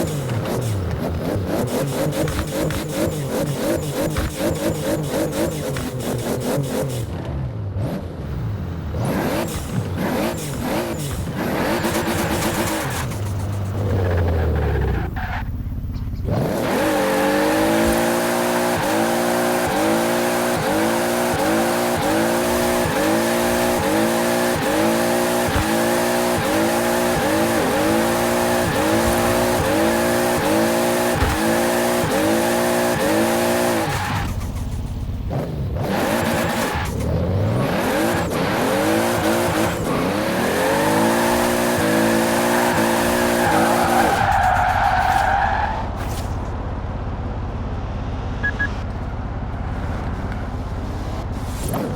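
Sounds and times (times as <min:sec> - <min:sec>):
turbocharged car engine surging at high revs: 0:00.0 - 0:07.1, 0:08.9 - 0:15.0, 0:16.3 - 0:34.4, 0:35.3 - 0:44.9.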